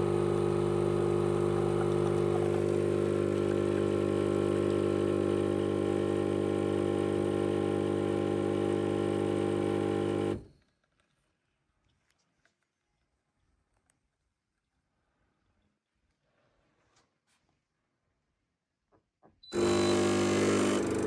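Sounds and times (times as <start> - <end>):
espresso machine pump humming: 0.0 - 10.4, 19.5 - 21.0.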